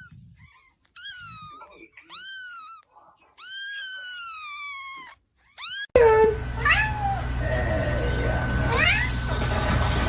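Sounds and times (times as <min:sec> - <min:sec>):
cat meowing: 0:00.0 - 0:06.0, 0:06.6 - 0:07.2
high rising cat cries: 0:03.4 - 0:07.2.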